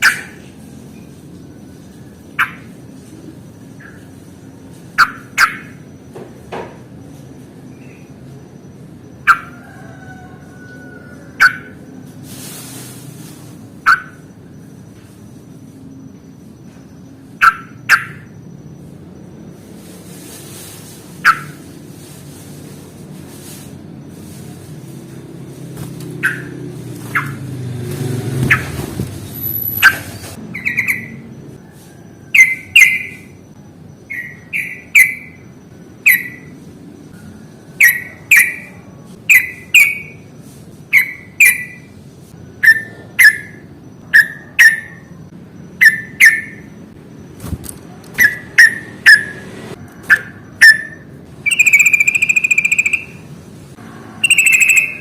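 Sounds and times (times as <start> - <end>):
bulbul chirping: 2.3 - 2.8, 4.9 - 6.1, 16.9 - 18.6, 26.2 - 27.4, 29.5 - 31.4, 32.4 - 36.6, 37.7 - 40.3, 40.9 - 42.0, 42.6 - 47.4, 50.0 - 53.3, 54.2 - 55.0
bird whistled note: 50.1 - 53.2, 54.2 - 55.0.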